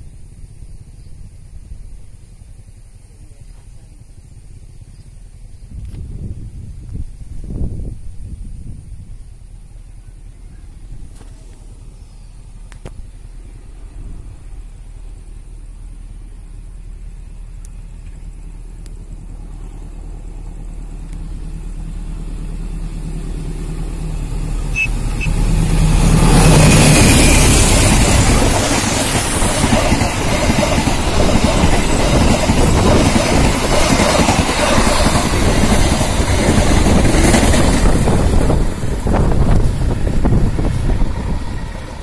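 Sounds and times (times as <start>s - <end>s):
diesel locomotive engine: 0.0s - 42.0s
wheels clattering on rails: 17.8s - 42.0s.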